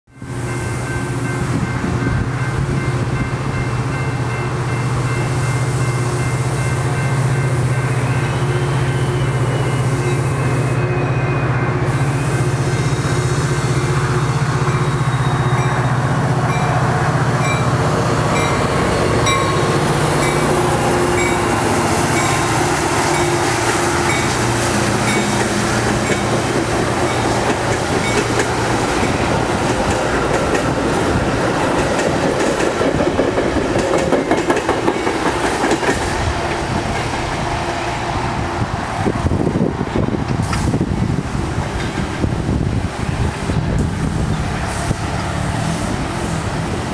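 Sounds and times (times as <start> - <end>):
locomotive drone: 0.1 - 46.9
passenger cars rumbling and clacking: 12.4 - 46.9.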